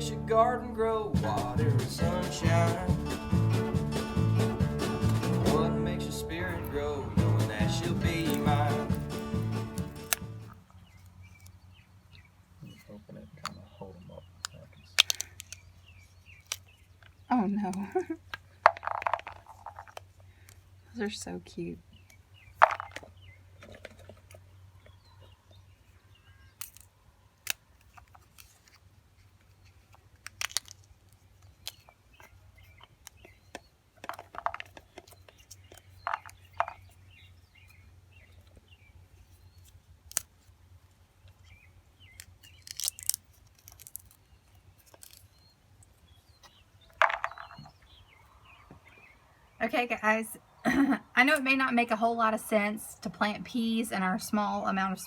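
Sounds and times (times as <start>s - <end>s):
pea pods snapping open: 7.9s - 11.6s, 14.4s - 20.6s, 26.5s - 36.9s, 39.5s - 40.6s, 42.0s - 47.5s.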